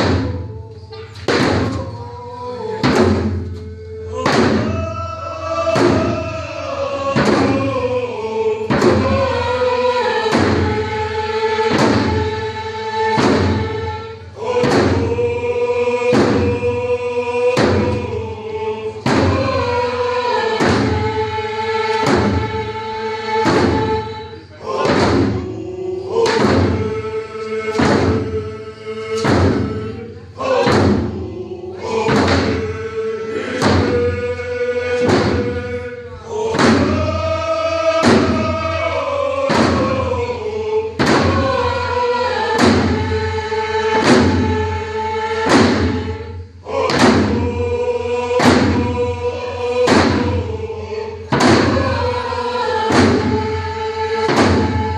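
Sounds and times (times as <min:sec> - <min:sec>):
group singing in unison: 0:00.0 - 0:54.9
hand drums beating: 0:02.8 - 0:03.6, 0:04.2 - 0:04.9, 0:05.7 - 0:06.3, 0:07.1 - 0:07.8, 0:08.7 - 0:09.4, 0:11.6 - 0:12.4, 0:13.0 - 0:14.0, 0:16.1 - 0:16.7, 0:20.5 - 0:21.2, 0:21.9 - 0:22.6, 0:23.4 - 0:24.2, 0:24.8 - 0:25.6, 0:27.7 - 0:28.4, 0:29.2 - 0:29.8, 0:30.6 - 0:31.2, 0:32.0 - 0:32.7, 0:34.9 - 0:35.7, 0:37.9 - 0:38.9, 0:39.5 - 0:40.1, 0:41.0 - 0:43.3, 0:43.9 - 0:44.7, 0:45.4 - 0:46.3, 0:48.4 - 0:49.0, 0:49.8 - 0:50.5, 0:51.3 - 0:53.6, 0:54.2 - 0:54.9
slow drum beats: 0:02.8 - 0:05.0, 0:05.6 - 0:06.4, 0:07.1 - 0:08.0, 0:08.6 - 0:28.4, 0:29.1 - 0:54.9.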